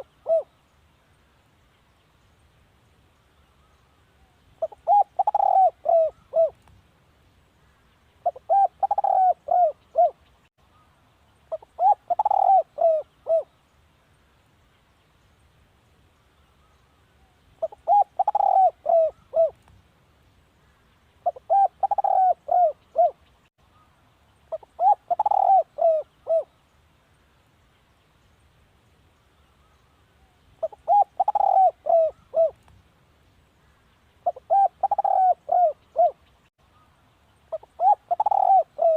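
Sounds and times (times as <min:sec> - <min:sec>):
dove cooing: 0:00.0 - 0:00.5, 0:04.6 - 0:06.6, 0:08.2 - 0:10.2, 0:11.5 - 0:13.5, 0:17.6 - 0:19.6, 0:21.2 - 0:23.2, 0:24.5 - 0:26.6, 0:30.6 - 0:32.6, 0:34.2 - 0:36.2, 0:37.5 - 0:38.9.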